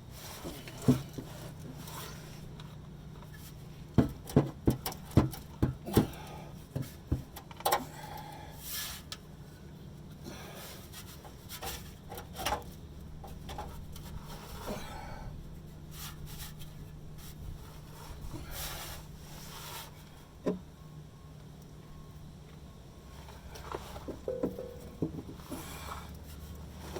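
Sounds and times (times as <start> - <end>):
sharp knocks on exhaust pipe: 4.0 - 6.2, 24.1 - 25.6
steady low hum: 12.7 - 26.9
soft knocks and scrapes: 23.6 - 26.9.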